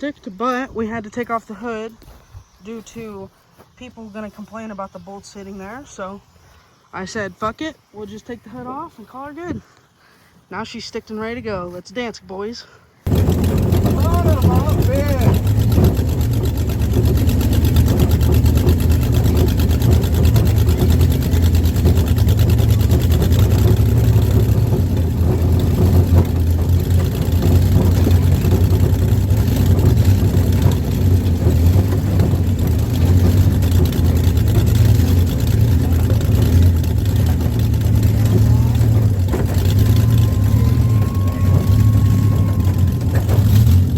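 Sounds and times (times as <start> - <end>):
car engine running: 13.1 - 43.9.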